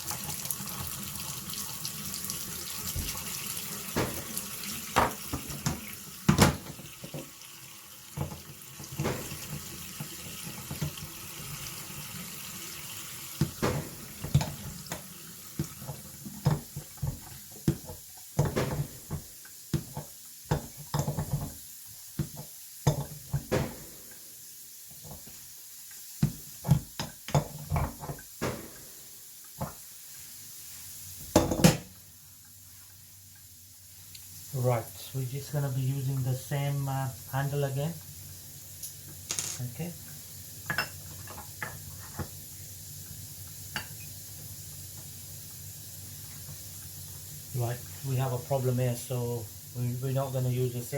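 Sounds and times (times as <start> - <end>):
tap water running into sink: 0.0 - 29.9, 36.1 - 50.9.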